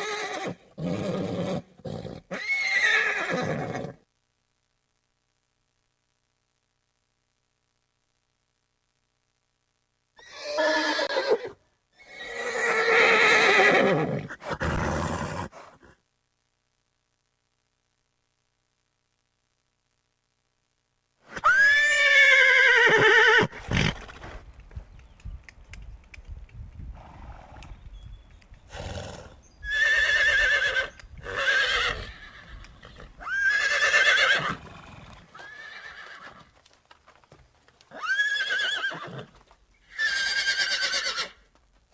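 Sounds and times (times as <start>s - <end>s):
horse whinnying: 0.0s - 4.0s, 10.2s - 15.8s, 21.3s - 24.4s, 28.7s - 36.5s, 37.9s - 41.4s
low rough horse sound: 23.5s - 29.8s.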